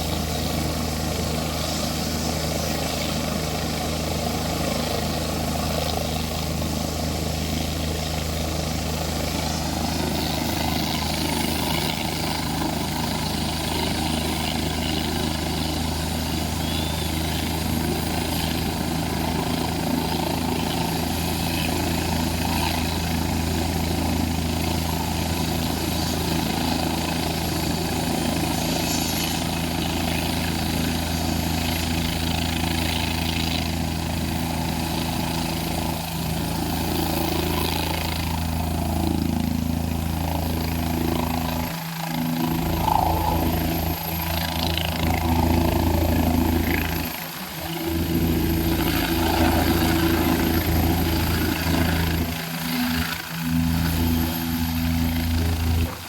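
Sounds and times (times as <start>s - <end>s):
helicopter engine and rotor: 0.0s - 56.0s.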